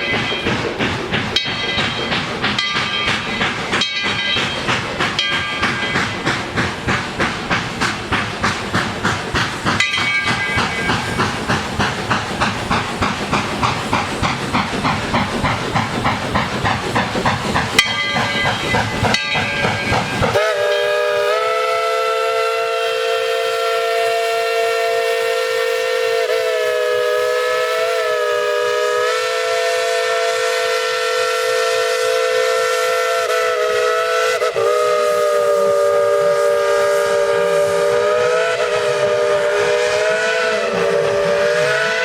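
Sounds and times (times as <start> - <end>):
steam locomotive exhaust chuffing: 0.0 - 42.0
steam whistle blast: 20.2 - 42.0.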